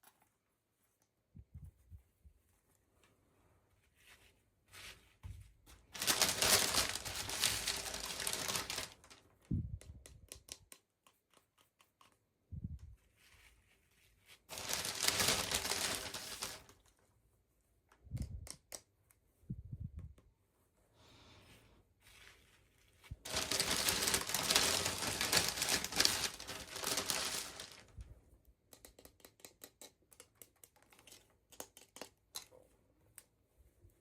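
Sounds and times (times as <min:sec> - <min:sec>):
packaging torn and crinkled: 0:06.0 - 0:09.2, 0:14.5 - 0:16.8, 0:23.3 - 0:28.0
small clicks and taps: 0:09.8 - 0:12.2, 0:17.9 - 0:19.2, 0:28.7 - 0:33.3.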